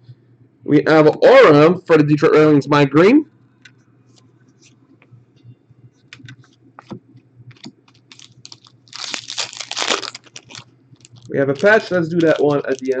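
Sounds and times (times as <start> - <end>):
foil pack ripping: 7.9 - 13.0.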